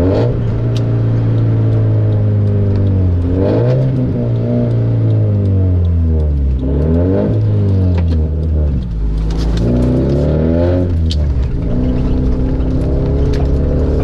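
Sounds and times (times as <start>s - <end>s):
car engine accelerating hard: 0.0s - 14.0s.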